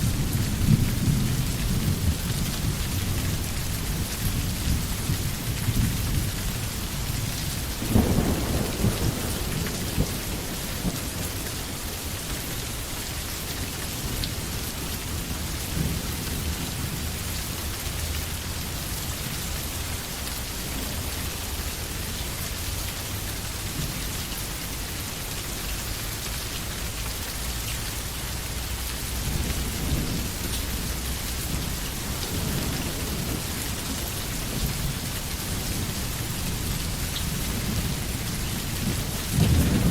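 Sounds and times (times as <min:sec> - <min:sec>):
heavy rain on foliage: 0:00.0 - 0:39.9
thunder: 0:07.7 - 0:12.4, 0:36.4 - 0:39.9.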